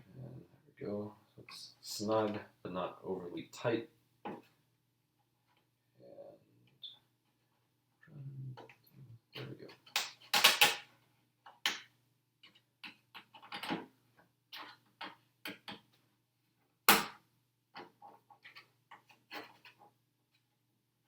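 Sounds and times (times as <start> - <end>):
plastic parts clicking and tapping: 9.4 - 16.0.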